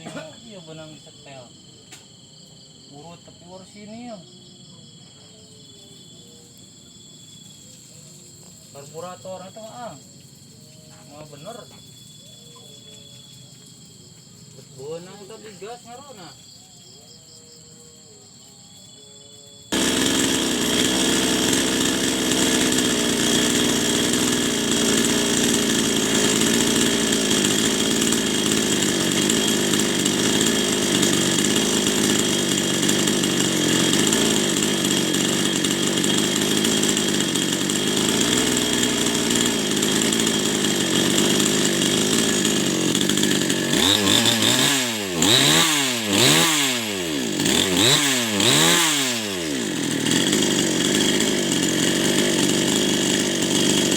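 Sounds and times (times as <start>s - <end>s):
small motorcycle engine running: 19.7s - 53.9s.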